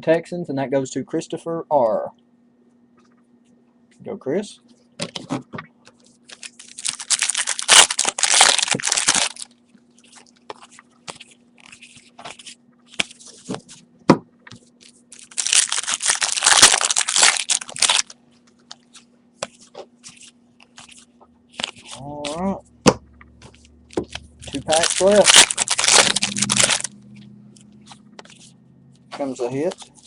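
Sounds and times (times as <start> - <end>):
card pack wrappers tearing: 6.3 - 13.3, 14.8 - 19.0, 20.1 - 22.4, 23.9 - 26.9, 29.2 - 30.0.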